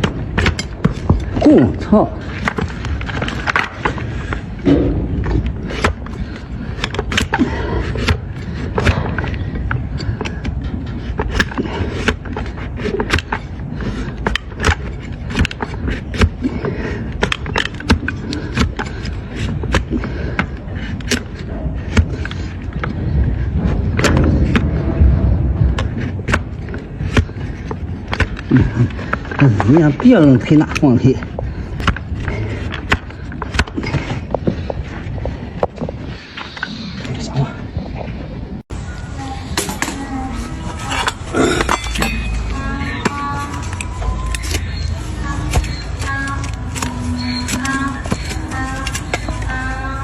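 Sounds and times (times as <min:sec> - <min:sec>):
sharp knocks and clicks: 0:00.0 - 0:01.5, 0:02.2 - 0:36.6
tools cracking into hoof: 0:00.0 - 0:36.7, 0:40.8 - 0:50.0
steady low rumble: 0:00.0 - 0:50.0.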